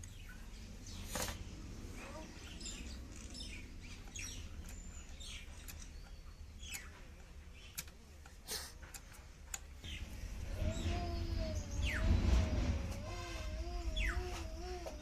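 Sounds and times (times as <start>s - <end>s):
small birds chirping: 0.0s - 15.0s
low rumble: 9.8s - 15.0s.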